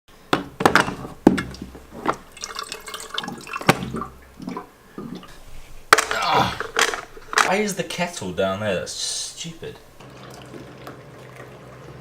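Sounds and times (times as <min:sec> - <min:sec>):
water running: 0:00.1 - 0:12.0
knocks and clinks of handling: 0:00.3 - 0:08.2.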